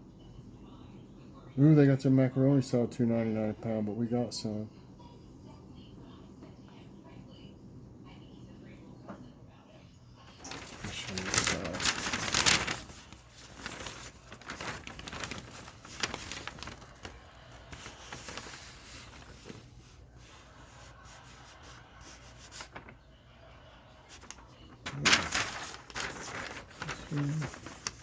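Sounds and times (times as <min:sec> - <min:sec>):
paper rustling and crinkling: 0:10.3 - 0:23.1, 0:24.1 - 0:28.0.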